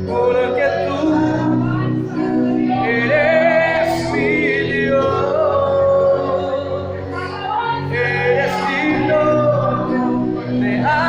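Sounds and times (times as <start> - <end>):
musical accompaniment: 0.0 - 11.0
person singing worship song: 0.0 - 11.0.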